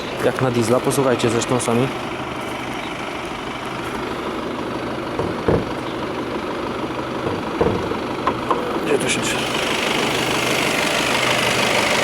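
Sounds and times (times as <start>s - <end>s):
diesel engine idling: 0.0s - 12.0s
low thump: 5.2s - 5.7s.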